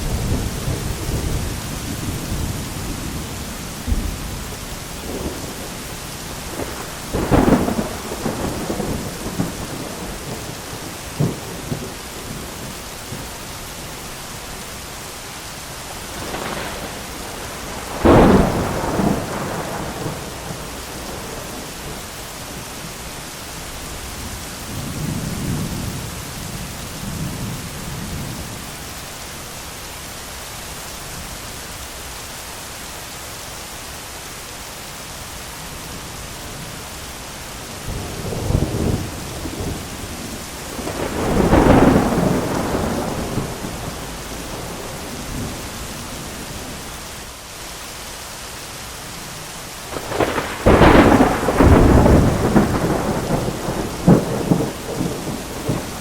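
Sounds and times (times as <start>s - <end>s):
loud thunderclaps: 0.0s - 13.3s, 16.0s - 22.7s, 37.9s - 46.8s, 49.9s - 56.0s
rolling thunder: 0.0s - 13.4s, 15.8s - 22.8s, 37.7s - 47.0s, 49.9s - 56.0s
heavy rain: 0.0s - 56.0s.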